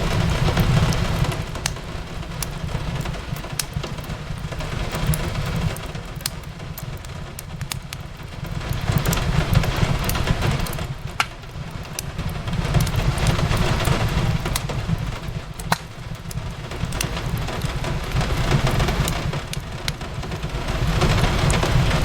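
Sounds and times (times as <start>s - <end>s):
rain on a window: 0.0s - 22.0s
wood fire crackling: 0.0s - 22.0s.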